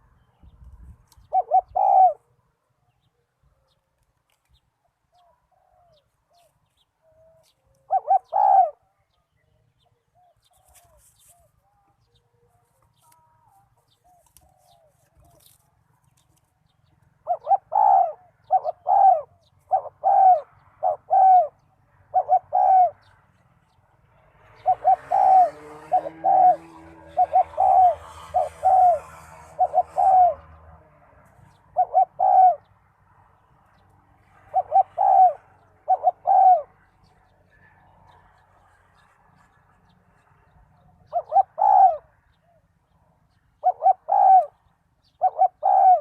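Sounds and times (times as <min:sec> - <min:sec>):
dove cooing: 0:01.1 - 0:03.8, 0:05.1 - 0:08.9, 0:17.2 - 0:23.1, 0:24.5 - 0:30.7, 0:31.6 - 0:32.7, 0:34.4 - 0:37.0, 0:40.8 - 0:42.7, 0:43.6 - 0:46.0.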